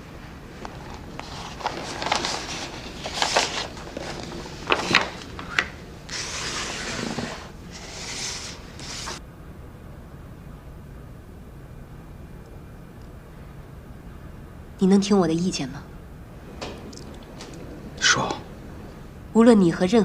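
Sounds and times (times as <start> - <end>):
rubbing and rustling: 0.0 - 9.2.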